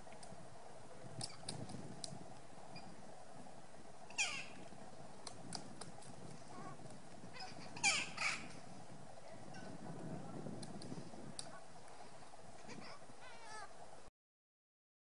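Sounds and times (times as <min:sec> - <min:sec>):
harsh downward bird calls: 0:04.1 - 0:04.6, 0:07.4 - 0:08.5.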